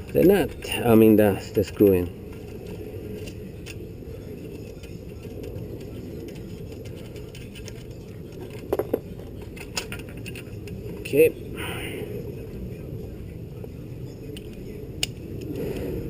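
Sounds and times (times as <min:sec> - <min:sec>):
steady low rumble: 0:00.0 - 0:16.0
metal parts and tools handled: 0:04.4 - 0:11.2.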